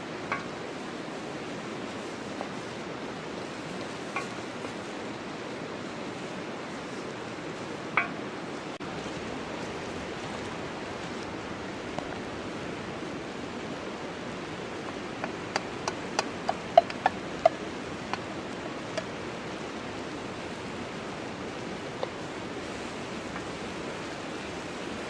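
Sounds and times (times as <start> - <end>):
creek water flowing: 0.0 - 25.0.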